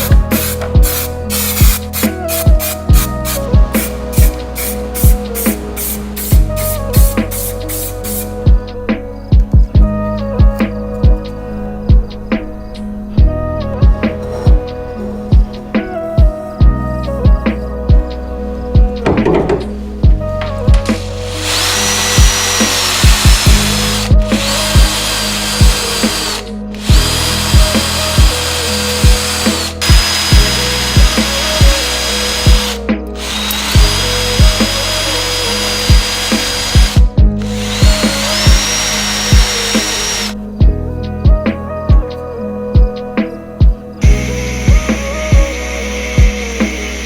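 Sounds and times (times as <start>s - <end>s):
background music with beat: 0.0s - 47.0s
power tool whining: 20.8s - 40.4s, 44.0s - 47.0s.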